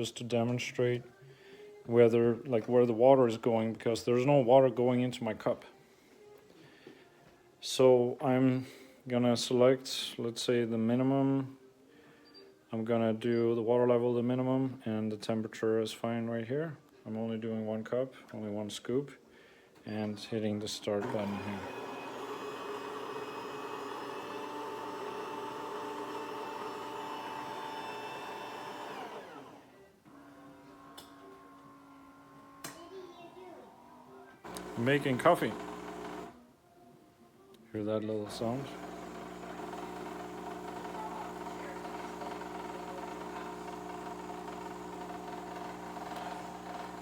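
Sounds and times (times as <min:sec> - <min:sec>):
water pump working: 0:21.0 - 0:29.3, 0:34.5 - 0:36.3, 0:38.3 - 0:47.0
espresso machine motor whine: 0:21.0 - 0:32.6, 0:34.4 - 0:36.4, 0:38.2 - 0:47.0.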